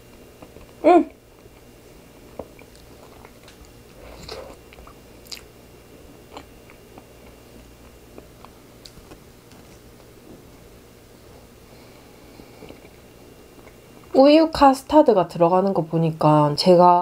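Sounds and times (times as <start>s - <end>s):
wet chewing mouth clicks: 4.2s - 5.5s.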